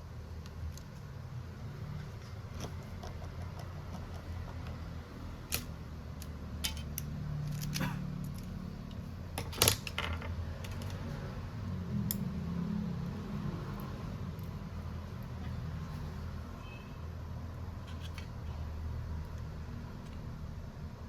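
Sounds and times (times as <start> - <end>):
low steady hum: 0.0 - 21.0
tools and parts clicking: 2.0 - 11.1, 17.8 - 18.4.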